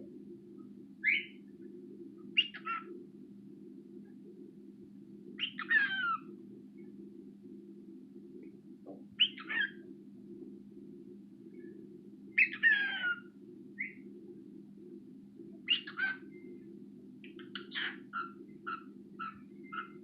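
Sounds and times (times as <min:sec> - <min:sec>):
steady low hum: 0:00.0 - 0:20.0
bird chirps: 0:01.0 - 0:01.4, 0:02.4 - 0:02.9, 0:05.4 - 0:06.3, 0:09.2 - 0:09.8, 0:12.4 - 0:14.1, 0:15.6 - 0:16.6, 0:17.2 - 0:20.0
cockatiel squawking: 0:12.4 - 0:13.2.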